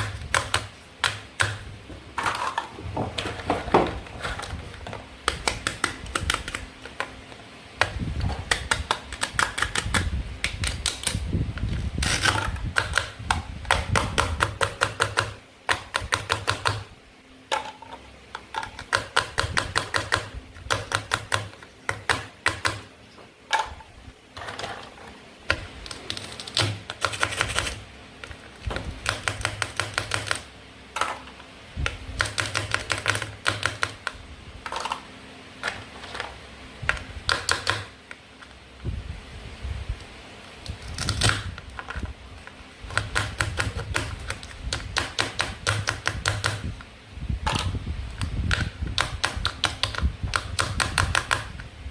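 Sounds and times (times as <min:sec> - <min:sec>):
sharp plastic clicks: 0:05.2 - 0:07.2, 0:07.8 - 0:11.2, 0:25.5 - 0:27.8, 0:28.7 - 0:30.5, 0:47.5 - 0:51.7.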